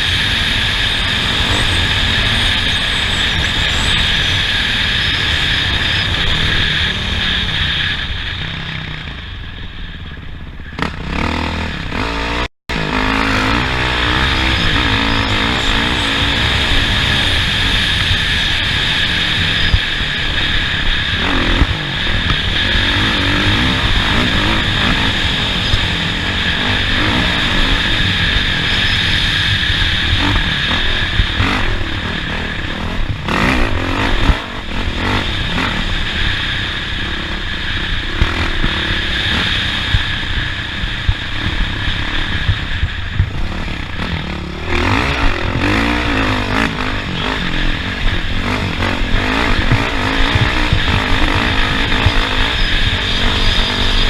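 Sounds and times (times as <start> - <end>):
race vehicle engine revving: 10.8 - 54.0.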